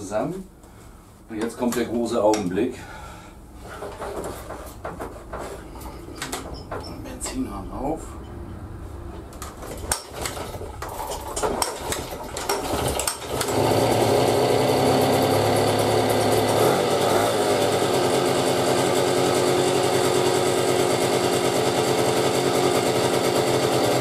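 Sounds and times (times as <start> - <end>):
clicks and knocks: 3.8 - 7.0, 9.2 - 13.5
moped engine starting and running: 9.3 - 24.0.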